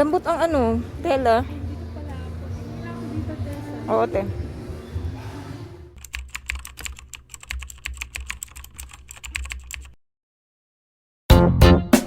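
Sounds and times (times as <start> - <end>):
guitar music: 11.3 - 12.0.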